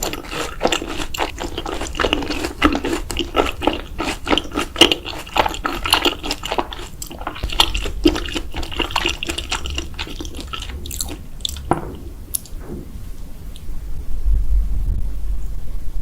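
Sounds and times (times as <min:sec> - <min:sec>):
wet chewing of noodles: 0:00.0 - 0:12.6.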